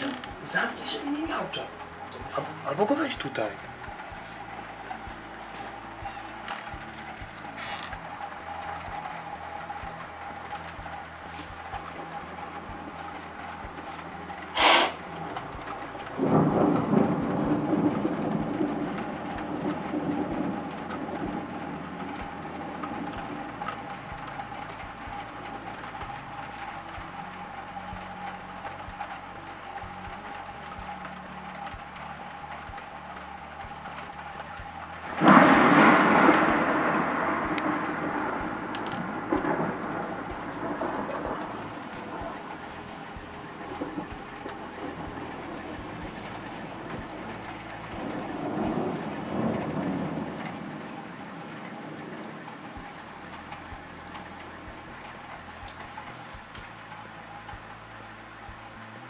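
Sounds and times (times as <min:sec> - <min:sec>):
thunder rumbling: 0:00.0 - 0:57.9
steady rain falling: 0:00.0 - 0:59.0
lightning strike crack: 0:14.6 - 0:15.0, 0:16.1 - 0:23.8, 0:35.0 - 0:42.6, 0:43.5 - 0:52.8.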